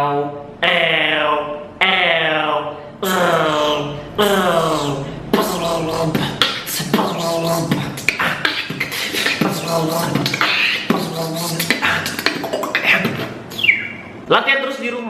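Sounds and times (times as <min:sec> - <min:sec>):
beatboxer rolling vocal effect: 0:00.0 - 0:14.2
hissing breath: 0:07.6 - 0:10.9.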